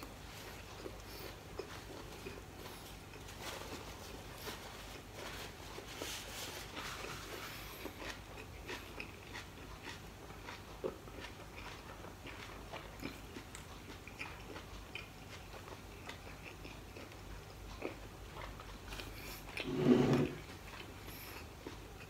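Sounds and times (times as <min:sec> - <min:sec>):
chewing with mouth clicks: 0:00.0 - 0:19.7, 0:20.3 - 0:22.0
paper napkin rustling: 0:03.3 - 0:07.6.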